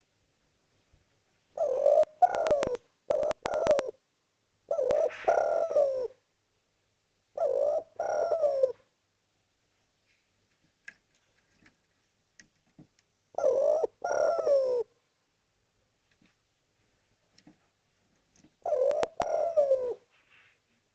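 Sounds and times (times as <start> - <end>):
dove cooing: 1.5 - 4.0, 4.7 - 6.2, 7.4 - 8.9, 13.4 - 14.9, 18.6 - 20.5.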